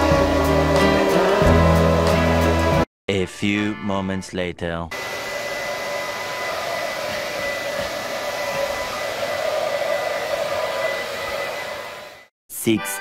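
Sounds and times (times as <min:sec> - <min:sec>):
blow dryer running: 0:00.0 - 0:02.8, 0:04.9 - 0:12.3.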